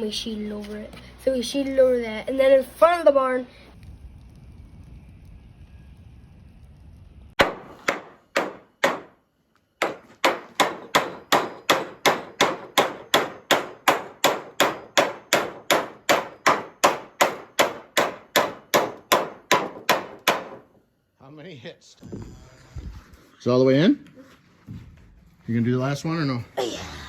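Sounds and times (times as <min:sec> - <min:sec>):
hammer striking metal spike: 0:07.4 - 0:09.1, 0:09.8 - 0:20.6.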